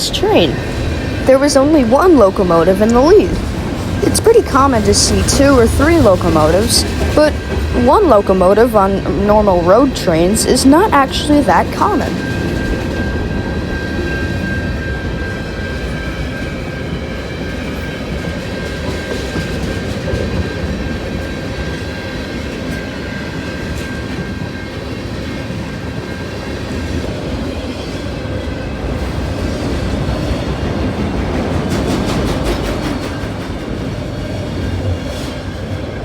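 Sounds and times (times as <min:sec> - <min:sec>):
freight train cars rolling past: 0:00.0 - 0:36.0.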